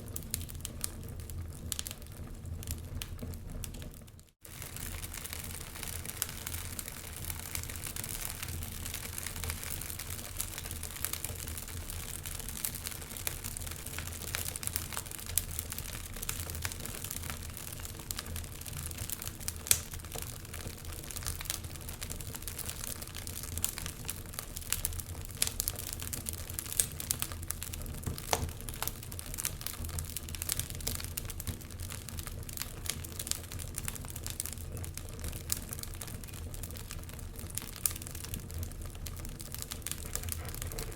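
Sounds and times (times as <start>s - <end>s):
fire rumbling and hissing: 0.0s - 40.9s
wood fire crackling and popping: 0.0s - 40.9s.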